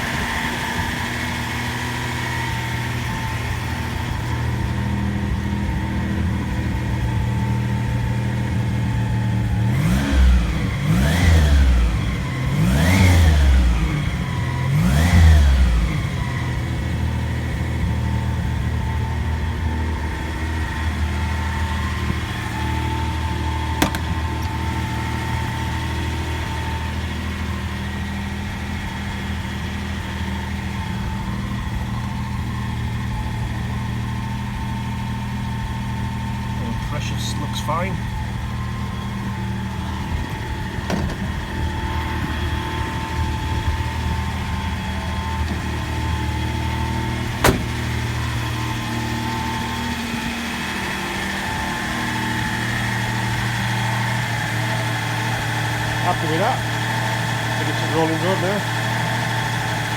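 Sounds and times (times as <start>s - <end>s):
car engine idling: 0.0s - 59.9s
engine throttle blips: 0.0s - 59.9s.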